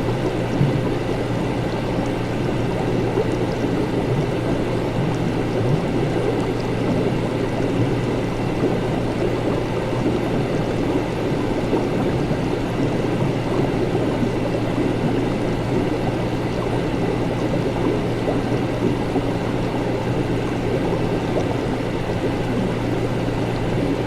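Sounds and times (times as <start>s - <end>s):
constant low hum: 0.0s - 24.0s.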